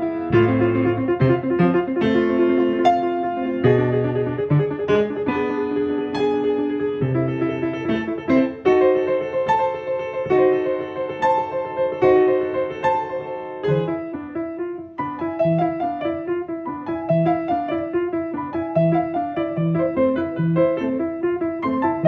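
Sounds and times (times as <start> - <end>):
low piano bass notes: 0.0 - 22.0
piano playing fast notes: 0.0 - 22.0.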